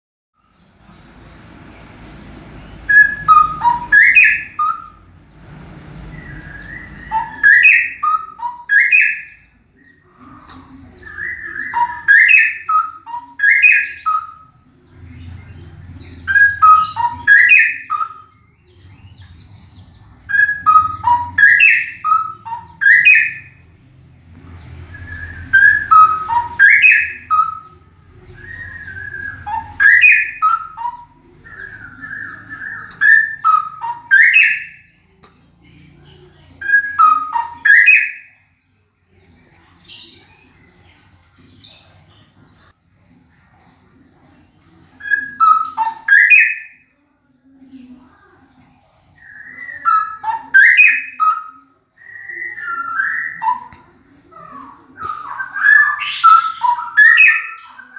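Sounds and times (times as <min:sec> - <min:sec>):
bird singing whistled phrases: 0:02.8 - 0:05.1, 0:06.1 - 0:09.5, 0:10.3 - 0:14.6, 0:16.2 - 0:18.5, 0:20.3 - 0:23.6, 0:24.9 - 0:34.9, 0:36.6 - 0:38.4, 0:45.0 - 0:46.8, 0:49.2 - 0:53.8, 0:55.0 - 0:57.9.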